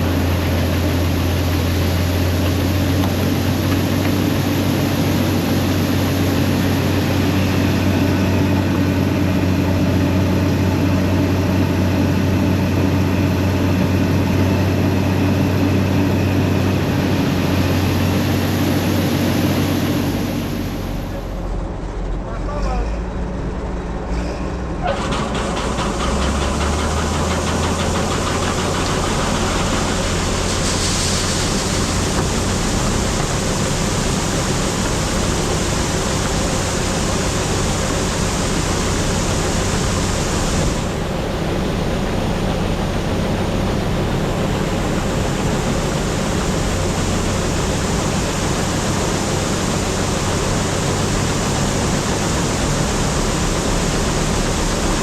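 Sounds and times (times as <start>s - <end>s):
combine engine drone: 0.0s - 55.0s
loud rushing hiss: 26.9s - 55.0s.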